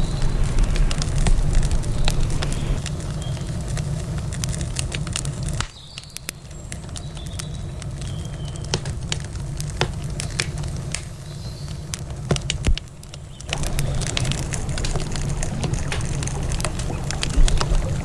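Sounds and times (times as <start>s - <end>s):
low rumble: 0.0s - 2.9s, 13.5s - 18.0s
campfire crackling: 0.0s - 5.7s, 13.1s - 18.0s.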